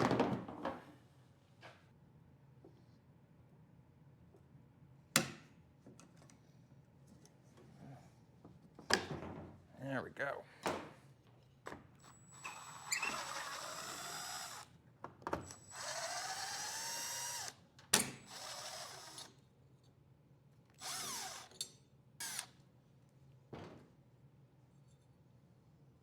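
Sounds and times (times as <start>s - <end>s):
power drill motor whine: 12.3s - 14.7s, 15.5s - 17.6s, 18.2s - 19.3s, 20.8s - 21.5s, 22.2s - 22.5s.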